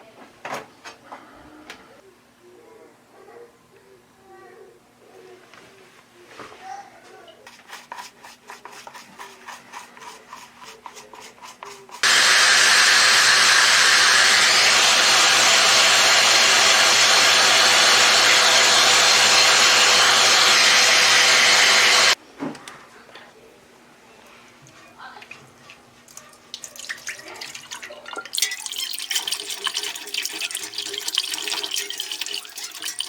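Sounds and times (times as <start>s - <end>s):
rhythmic rubbing strokes: 28.8s - 33.0s.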